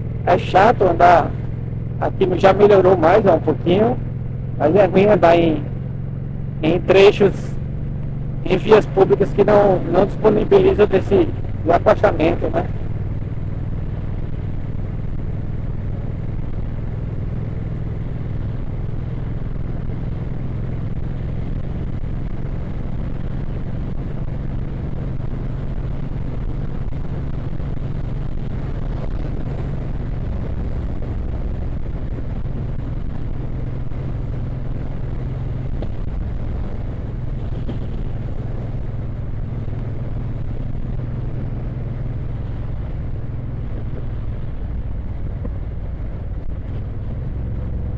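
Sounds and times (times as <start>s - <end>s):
motorcycle engine cruising: 0.0s - 47.9s
wind and road noise: 0.0s - 47.9s.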